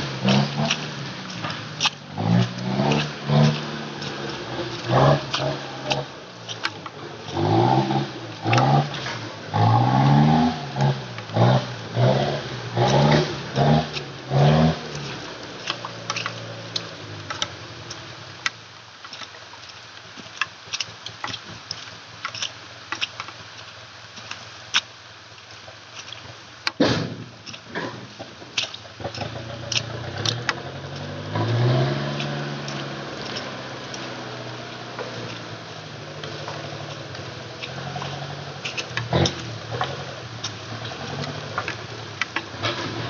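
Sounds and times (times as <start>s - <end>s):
dump truck engine revving: 0.0s - 17.5s, 29.0s - 43.0s.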